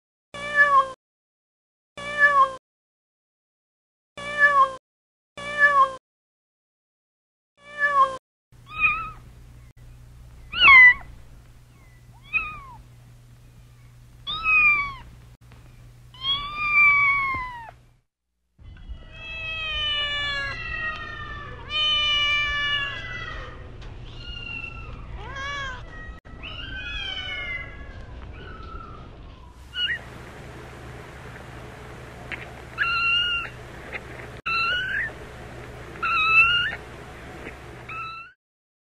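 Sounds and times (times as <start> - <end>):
kittens meowing: 8.7 - 9.2, 10.5 - 11.1, 11.7 - 12.8, 14.3 - 15.1, 16.2 - 17.8, 24.1 - 38.4.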